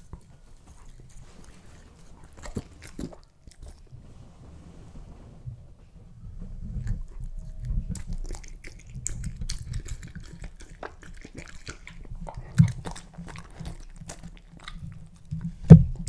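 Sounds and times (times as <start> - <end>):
puppy chewing and biting: 0.0 - 3.9, 6.4 - 16.0
dull thumps: 15.6 - 16.0.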